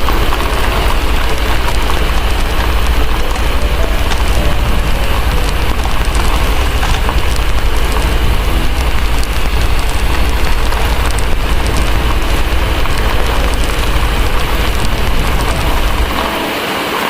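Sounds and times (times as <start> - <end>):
deep low rumble: 0.0 - 16.4
heavy rain: 0.0 - 17.0
wood fire crackling: 0.0 - 17.0.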